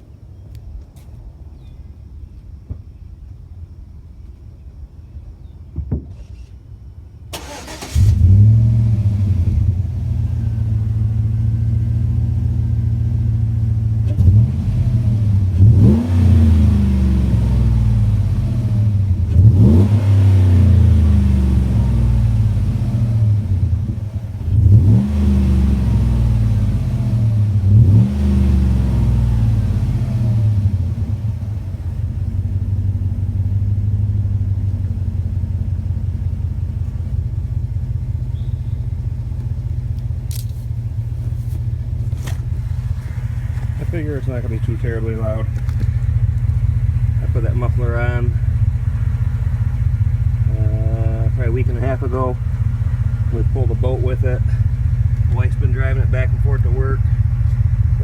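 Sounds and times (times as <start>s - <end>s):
car engine idling: 7.1s - 58.0s
engine cranking: 7.3s - 8.7s, 19.2s - 58.0s
engine throttle blips: 7.3s - 58.0s.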